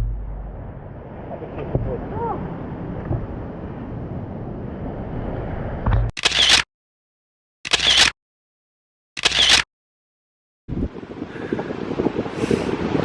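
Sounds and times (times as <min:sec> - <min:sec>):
camera shutter clicks: 0:06.2 - 0:06.7, 0:07.7 - 0:08.2, 0:09.2 - 0:09.7
wind noise on microphone: 0:10.7 - 0:13.0.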